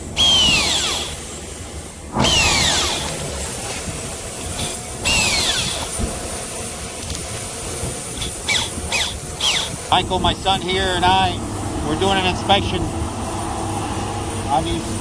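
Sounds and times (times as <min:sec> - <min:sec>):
power drill bursts: 0:00.0 - 0:03.9, 0:04.5 - 0:06.3, 0:08.0 - 0:10.2.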